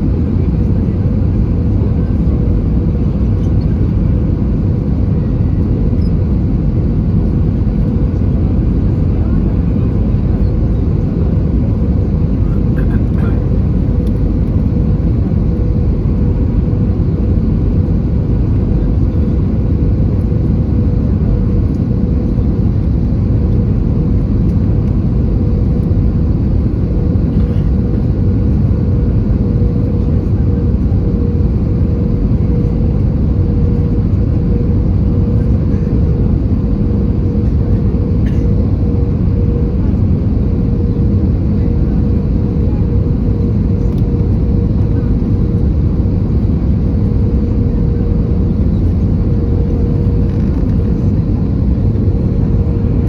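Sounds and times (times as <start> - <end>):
airplane cabin rumble: 0.0 - 53.0.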